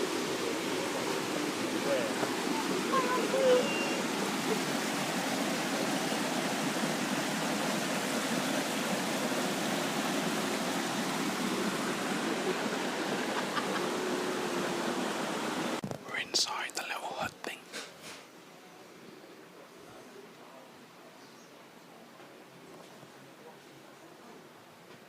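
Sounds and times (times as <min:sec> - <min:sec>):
stream flowing: 0:00.0 - 0:15.8
waterfall rushing: 0:00.0 - 0:15.8.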